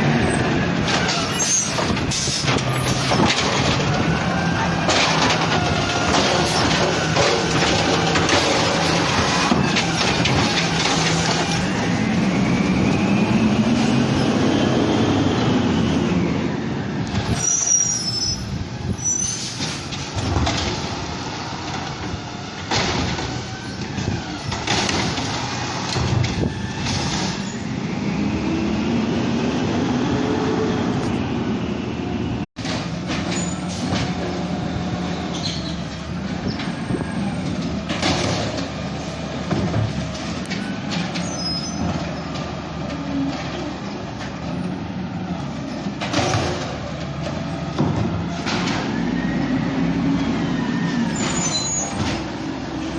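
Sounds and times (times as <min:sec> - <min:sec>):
garbage truck engine revving: 0:00.0 - 0:17.6, 0:19.7 - 0:52.9.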